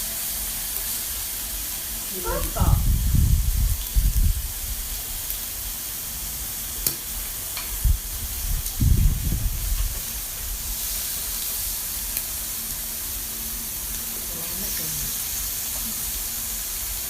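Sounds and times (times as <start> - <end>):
pork sizzling on a grill: 0.0 - 17.0
dull low thumps: 2.5 - 4.7.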